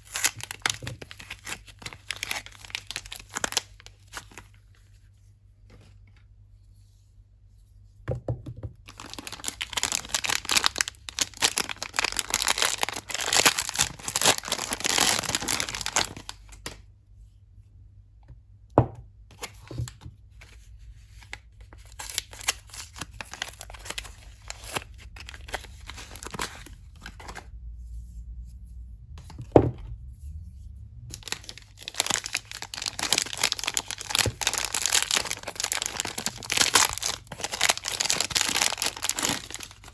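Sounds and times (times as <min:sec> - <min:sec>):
wrapping tearing and crinkling: 0:00.0 - 0:04.7, 0:08.9 - 0:16.8, 0:21.1 - 0:27.5, 0:31.1 - 0:39.9.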